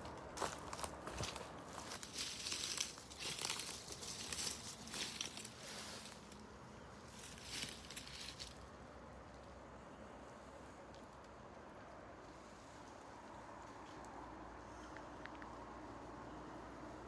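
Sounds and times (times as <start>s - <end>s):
crunching and rustling: 0.0s - 8.8s.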